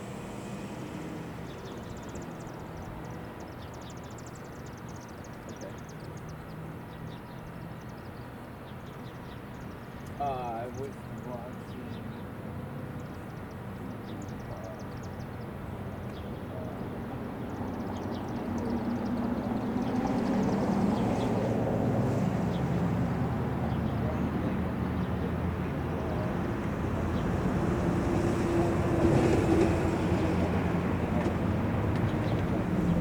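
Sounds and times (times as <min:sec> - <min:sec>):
passing vehicle engine rumble: 0:00.0 - 0:04.3, 0:15.5 - 0:33.0.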